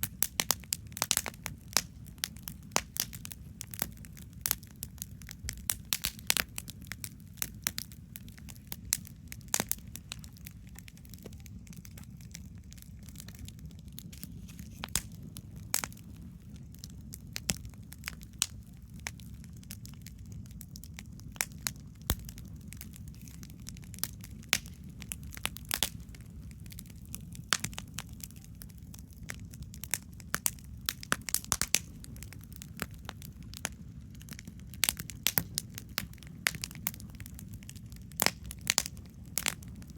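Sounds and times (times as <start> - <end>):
campfire crackling and popping: 0.0 - 39.9
steady low rumble: 0.0 - 39.9.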